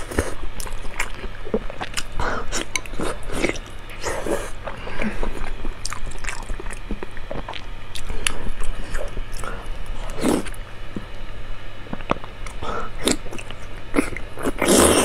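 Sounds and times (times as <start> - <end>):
wet chewing and lip-smacking: 0.6 - 11.1.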